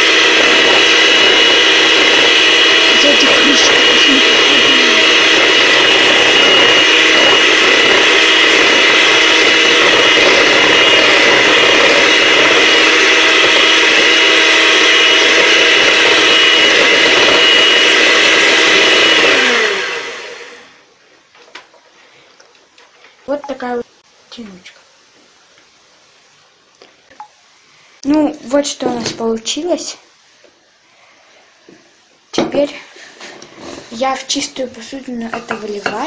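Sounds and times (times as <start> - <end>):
blender motor winding down: 0.0 - 20.9
electric blender running: 0.0 - 20.9.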